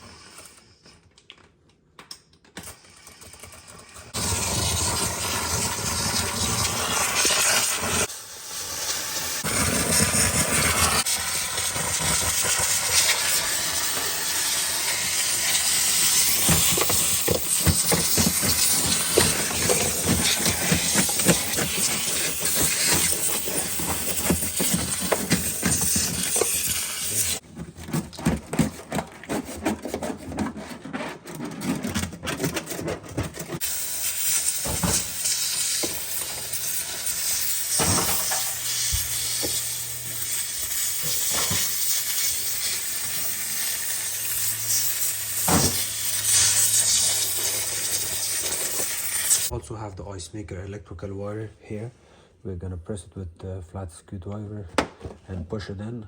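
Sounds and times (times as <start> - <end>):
steamer hissing steam: 4.1 - 27.4, 33.6 - 49.5.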